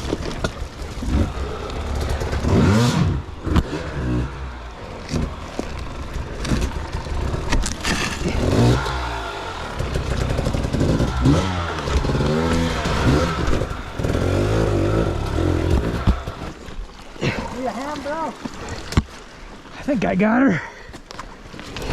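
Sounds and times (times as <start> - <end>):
dirt bike engine revving: 0.9 - 16.6.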